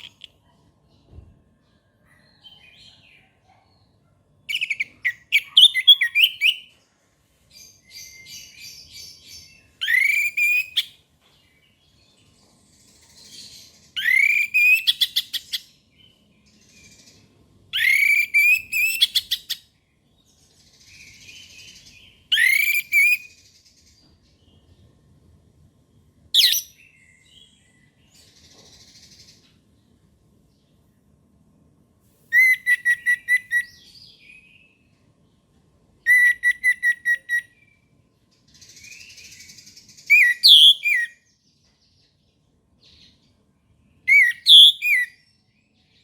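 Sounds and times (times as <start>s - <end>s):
soft bird twittering: 0.0s - 0.4s, 26.4s - 29.5s, 32.3s - 34.9s, 38.5s - 42.0s, 44.0s - 46.0s
thrush singing whistled phrases: 17.8s - 19.1s, 22.3s - 23.3s, 32.4s - 33.8s, 36.1s - 37.6s, 40.1s - 41.2s, 44.1s - 45.1s.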